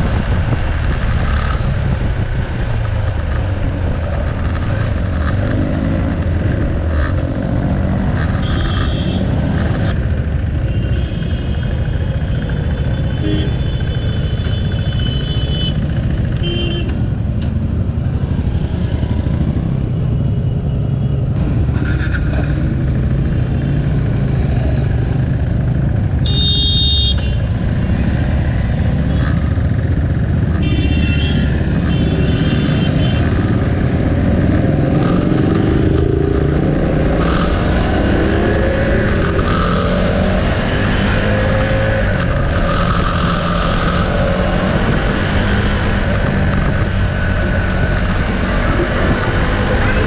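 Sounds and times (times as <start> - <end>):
motorcycle engine running: 46.2 - 50.0.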